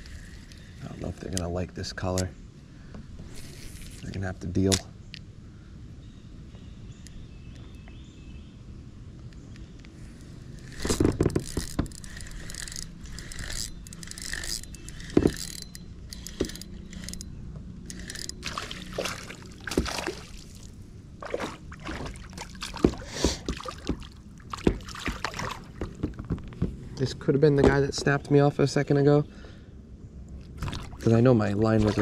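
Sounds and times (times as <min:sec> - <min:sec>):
gear knocking and scraping on kayak: 0:10.1 - 0:20.4, 0:21.2 - 0:28.2.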